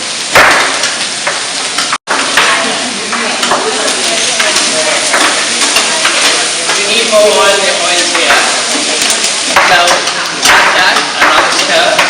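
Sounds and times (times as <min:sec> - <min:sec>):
vegetables sizzling in oil: 0:00.0 - 0:12.0
utensil clicking and scraping pan: 0:03.1 - 0:12.0.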